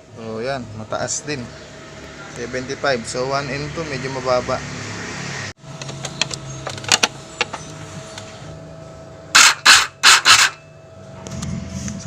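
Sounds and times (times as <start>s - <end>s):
tool clicks and ticks: 9.4s - 10.6s.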